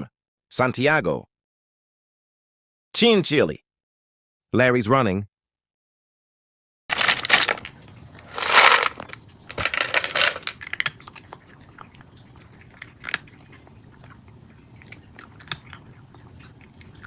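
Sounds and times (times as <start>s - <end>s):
pet crunching a dry treat: 6.9s - 17.0s.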